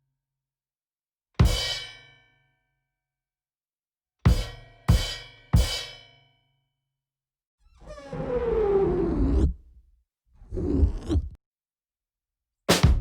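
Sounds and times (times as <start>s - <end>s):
kick drum hit: 12.7s - 13.0s.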